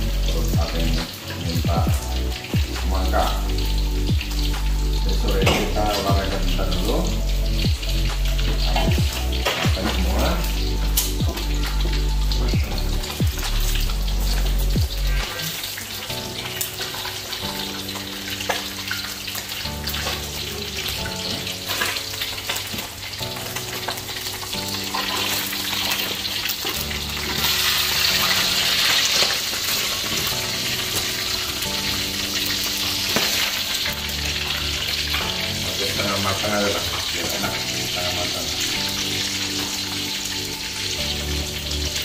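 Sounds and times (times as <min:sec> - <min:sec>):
food sizzling in woks: 0:00.0 - 0:42.0
soft background music: 0:00.0 - 0:42.0
utensils clinking on pans: 0:05.2 - 0:07.1, 0:08.3 - 0:12.0, 0:15.2 - 0:40.7.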